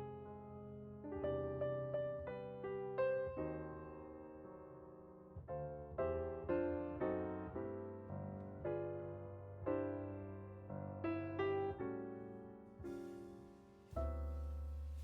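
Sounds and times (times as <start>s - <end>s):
piano background music: 0.0s - 15.0s.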